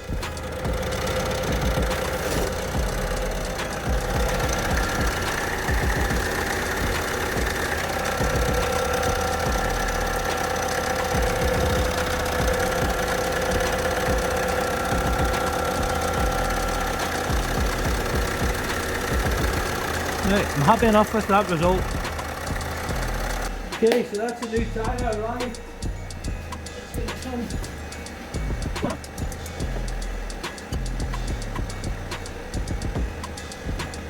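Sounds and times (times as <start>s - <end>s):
diesel engine idling with whine: 0.0s - 34.0s.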